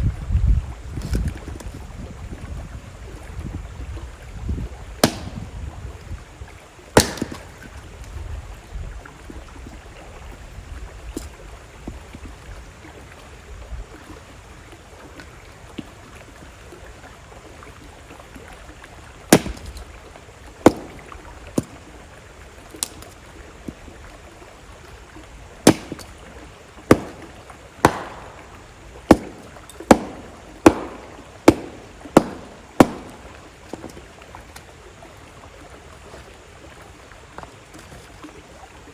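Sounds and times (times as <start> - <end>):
campfire crackling and popping: 5.0 - 5.6, 7.0 - 7.7, 19.3 - 19.9, 20.6 - 21.8, 25.6 - 34.7
river rushing: 19.3 - 23.1, 25.2 - 35.8.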